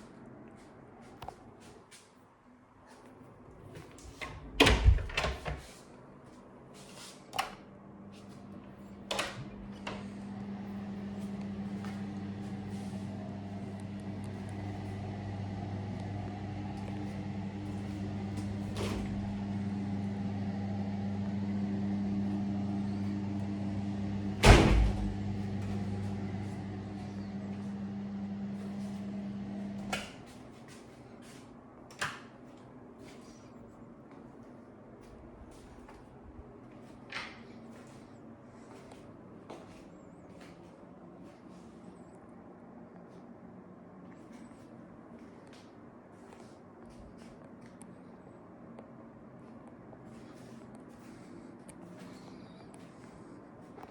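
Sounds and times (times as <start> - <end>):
electric hum: 7.8 - 30.0.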